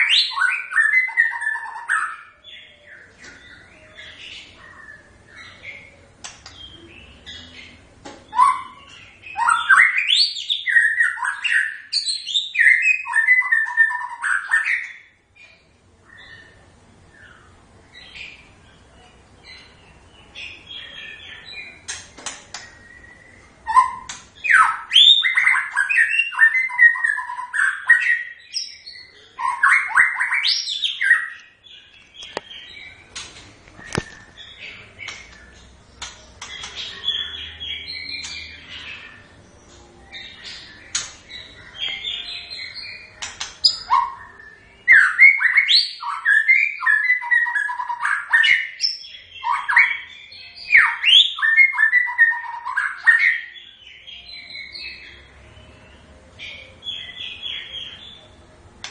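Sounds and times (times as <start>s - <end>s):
bird singing whistled phrases: 8.3s - 15.1s, 22.7s - 31.4s, 43.6s - 53.8s.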